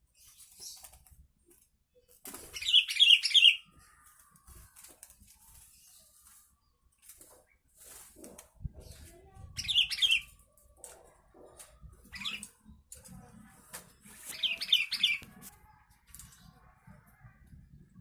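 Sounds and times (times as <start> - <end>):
bird singing warbled phrases: 2.5 - 4.3, 8.9 - 10.5, 12.0 - 12.5, 14.2 - 15.4.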